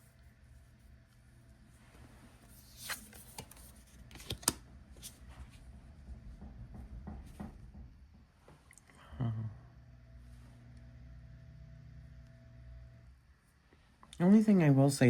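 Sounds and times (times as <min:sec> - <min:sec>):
paper rustling: 0:02.4 - 0:05.2.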